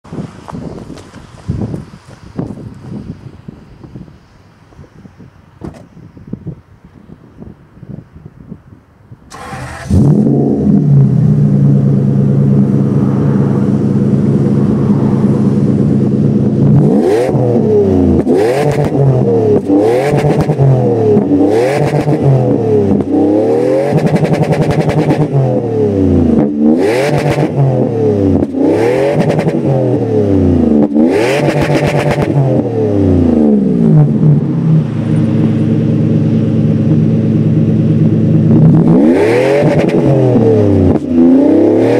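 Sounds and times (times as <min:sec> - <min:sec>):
car engine starting: 0:09.2 - 0:41.9
car engine idling and revving: 0:09.3 - 0:41.9.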